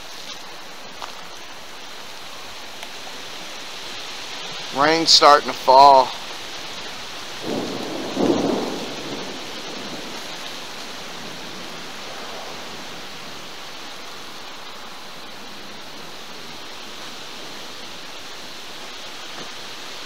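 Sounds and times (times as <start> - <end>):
rain falling: 0.0 - 20.0
thunder rumble: 6.0 - 20.0.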